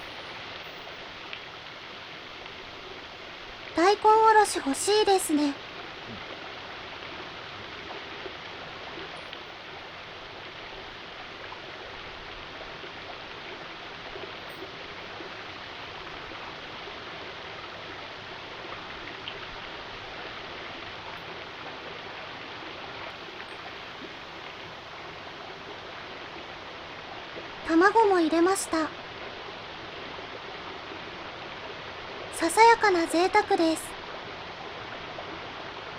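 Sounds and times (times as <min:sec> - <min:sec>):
faint ticks: 0:00.0 - 0:01.6, 0:02.4 - 0:02.6, 0:05.6 - 0:16.6, 0:18.7 - 0:26.4
flowing water rushing: 0:00.0 - 0:35.9.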